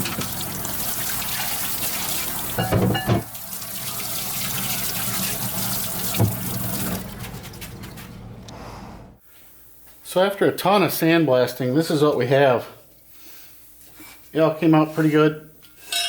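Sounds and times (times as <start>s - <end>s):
running water: 0.0s - 8.4s.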